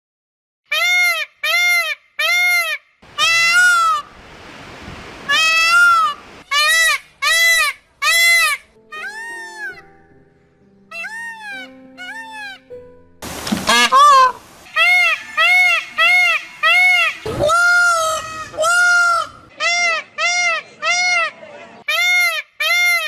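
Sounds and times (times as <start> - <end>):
animal calling: 2.6 - 4.1, 5.3 - 9.8, 10.9 - 12.6, 13.7 - 23.0.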